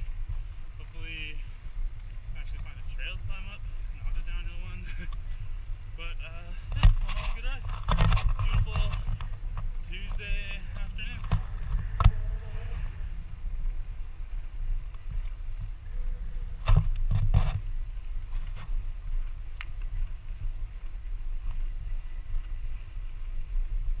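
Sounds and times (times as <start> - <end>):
wind and tyres rumbling: 0.0 - 24.0.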